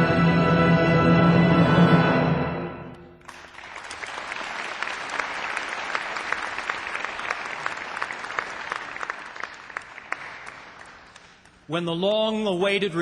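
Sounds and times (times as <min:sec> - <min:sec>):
audience applauding: 0:03.2 - 0:11.6.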